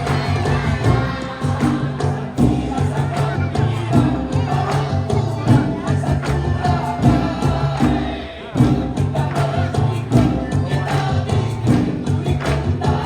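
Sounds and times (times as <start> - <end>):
heavy bass line: 0.0 - 13.0
person singing: 0.0 - 13.0
steady drum beat: 0.0 - 13.0.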